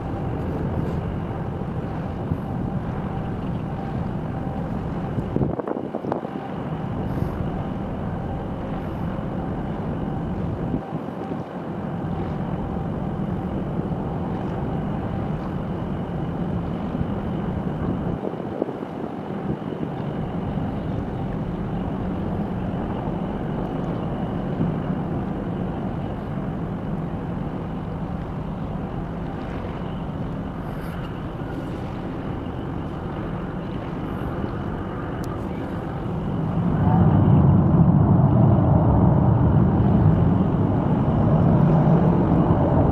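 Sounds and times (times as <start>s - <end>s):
ship engine drone: 0.0s - 42.9s
wind buffeting microphone: 0.0s - 42.9s.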